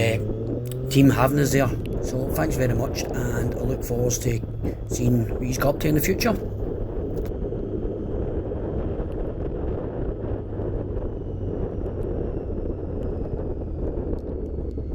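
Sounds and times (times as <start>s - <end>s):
motorcycle riding: 0.0s - 14.8s
wind rushing over microphone: 0.0s - 14.9s.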